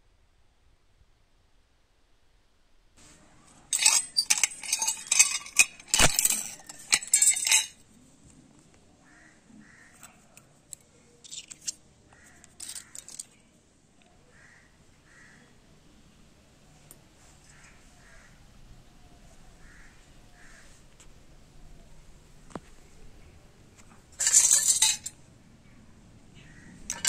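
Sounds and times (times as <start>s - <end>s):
metal parts clinking: 3.7s - 7.8s, 10.7s - 11.8s, 12.4s - 13.4s, 24.2s - 25.2s.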